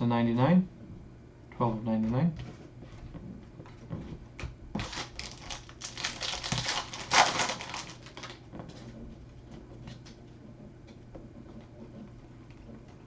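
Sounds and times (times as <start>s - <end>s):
foil wrapper tearing and crumpling: 4.8s - 8.5s.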